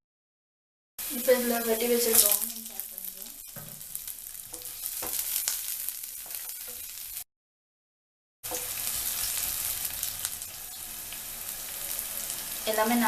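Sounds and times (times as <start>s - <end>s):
hot oil sizzling in a pan: 1.0s - 7.3s, 8.4s - 13.0s
spatula stirring and tapping: 3.3s - 7.0s, 8.5s - 9.5s.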